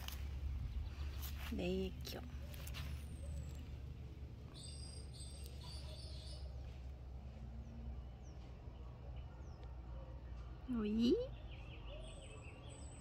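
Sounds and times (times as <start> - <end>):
low rumble: 0.0 - 9.1
high bird chirps: 2.4 - 6.8, 10.8 - 13.0.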